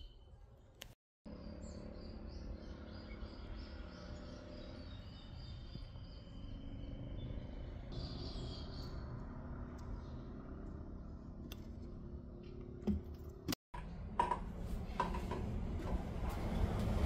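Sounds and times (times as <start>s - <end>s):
low outdoor rumble: 8.7s - 17.0s.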